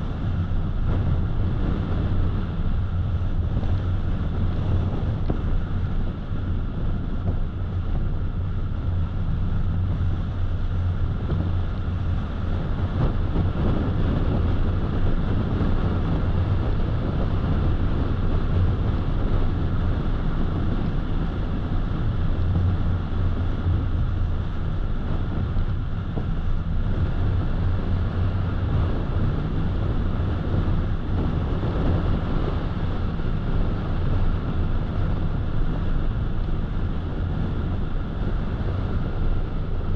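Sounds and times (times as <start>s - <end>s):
car road noise hum: 0.0s - 39.9s.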